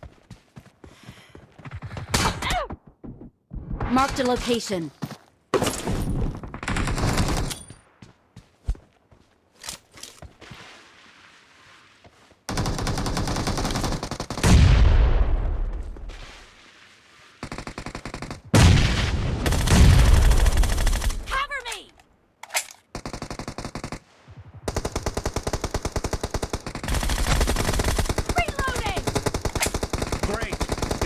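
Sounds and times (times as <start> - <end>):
video game automatic gunfire: 24.7 - 31.0.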